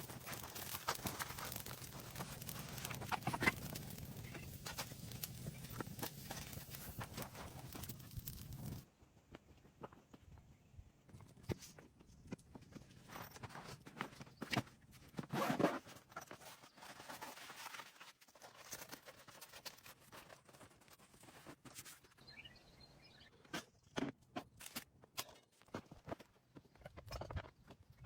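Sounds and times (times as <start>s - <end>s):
crunching rustles: 0.0s - 8.8s.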